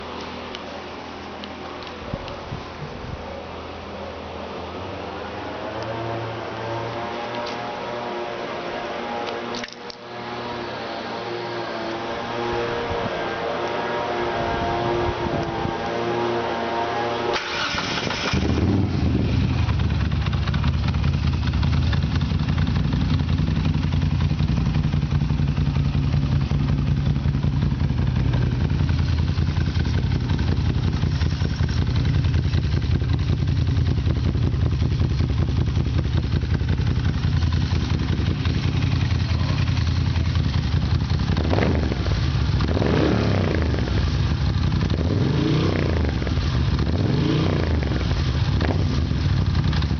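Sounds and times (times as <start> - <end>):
motorcycle engine idling and revving: 0.0 - 49.9
motorcycle starter turning: 17.3 - 18.6.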